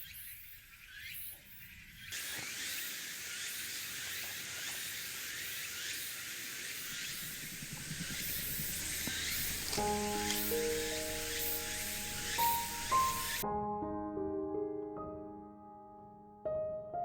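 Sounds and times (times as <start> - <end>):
meat sizzling with pops: 2.2 - 13.4.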